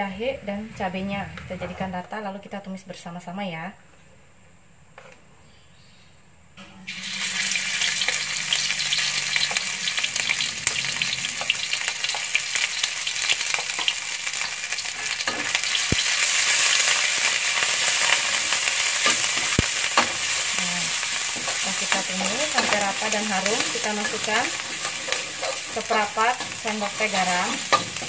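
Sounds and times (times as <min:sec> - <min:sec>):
metal spatula scraping wok: 0:06.8 - 0:28.0
paste sizzling in hot oil: 0:06.9 - 0:28.0.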